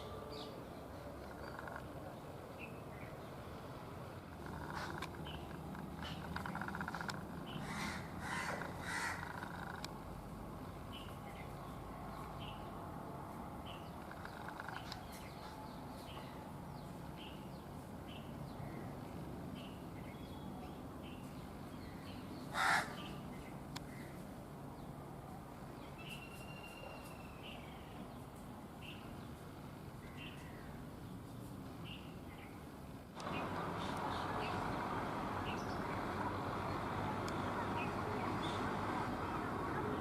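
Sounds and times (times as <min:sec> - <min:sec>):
loud harsh caw: 0:07.6 - 0:09.4, 0:22.5 - 0:23.0.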